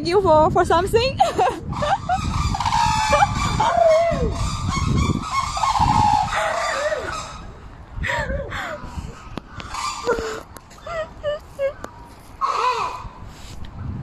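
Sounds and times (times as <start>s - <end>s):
honking goose-like bird calls: 9.6s - 10.2s.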